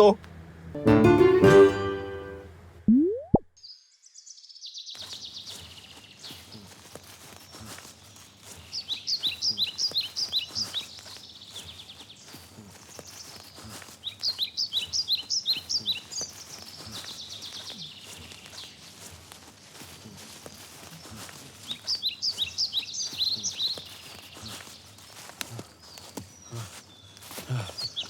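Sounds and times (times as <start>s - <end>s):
faint outdoor ambience: 4.9s - 28.0s.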